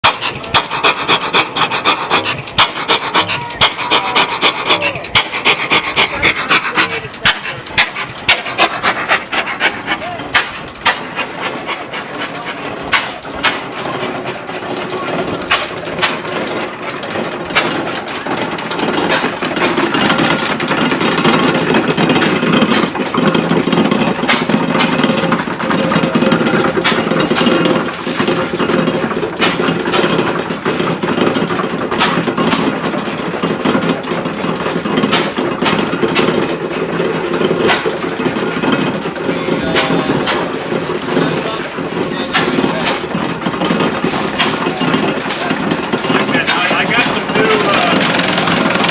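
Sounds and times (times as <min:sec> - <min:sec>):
stationary gas engine beats: 0:00.0 - 0:48.9
corn stalks rasping and crunching: 0:19.0 - 0:30.4, 0:39.8 - 0:48.9.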